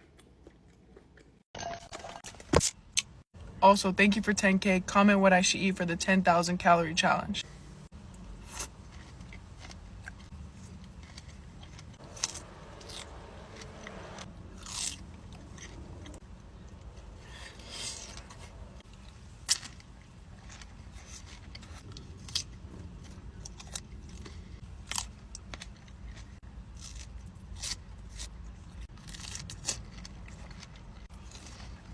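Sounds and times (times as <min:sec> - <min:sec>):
biting and chewing fruit: 0:00.0 - 0:01.5, 0:07.9 - 0:31.9.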